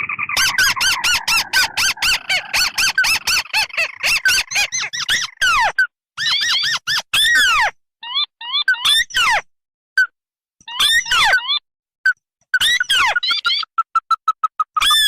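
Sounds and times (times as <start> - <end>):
faint bird trill: 0.0 - 9.4
squeaky bird calls: 0.0 - 10.1, 10.7 - 15.0.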